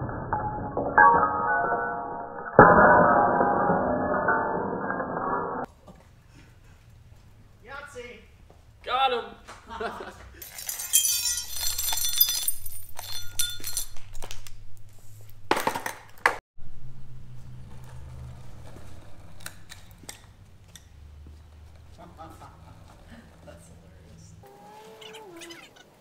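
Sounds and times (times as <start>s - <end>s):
small hard objects clinking: 10.4s - 14.4s.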